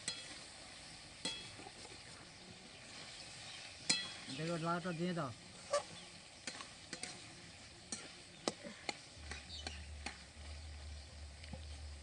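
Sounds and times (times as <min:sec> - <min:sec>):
low hum: 0:09.2 - 0:12.0.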